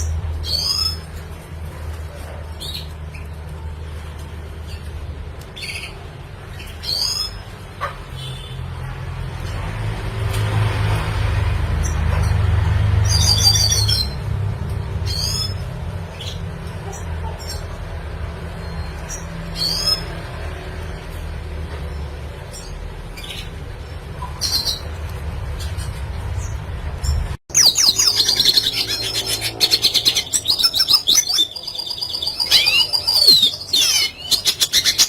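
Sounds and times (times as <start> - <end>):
bird chirping: 13.0 - 14.3, 22.4 - 35.0.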